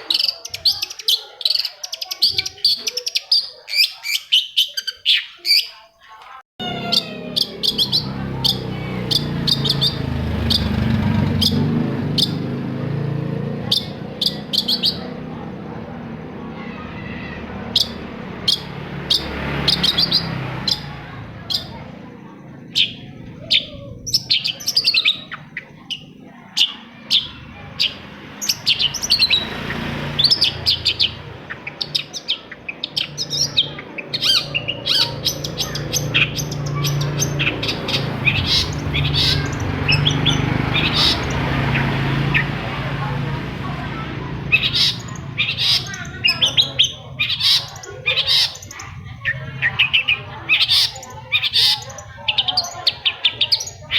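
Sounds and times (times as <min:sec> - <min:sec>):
bird singing chirps and trills: 0:00.0 - 0:53.9.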